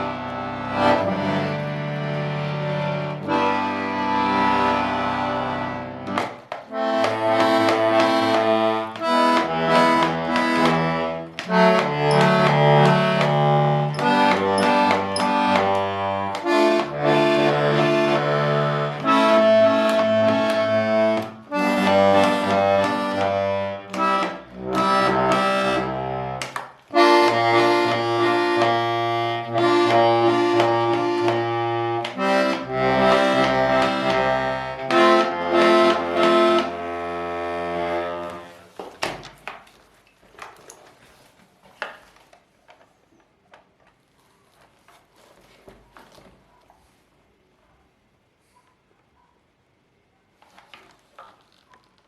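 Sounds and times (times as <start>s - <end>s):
button accordion playing a tune: 0.0s - 38.7s.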